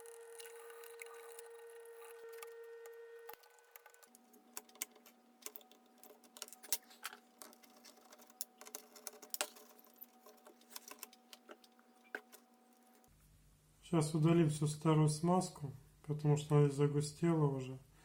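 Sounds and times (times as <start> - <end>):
small parts clicking and tapping: 0.0 - 2.6, 3.3 - 13.1.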